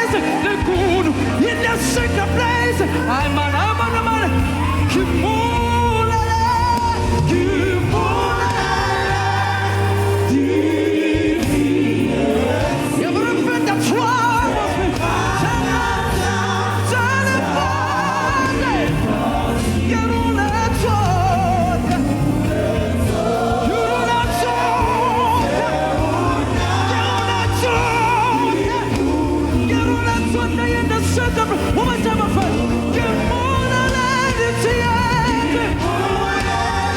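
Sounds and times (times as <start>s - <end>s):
gospel choir singing: 0.0s - 36.9s
live band playing: 0.0s - 36.9s.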